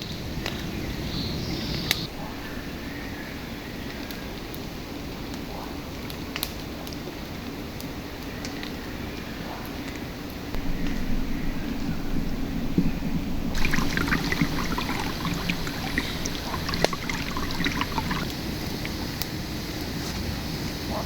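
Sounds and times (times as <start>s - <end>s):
shallow river flowing: 10.6s - 21.0s
water splashing and trickling: 10.6s - 21.0s.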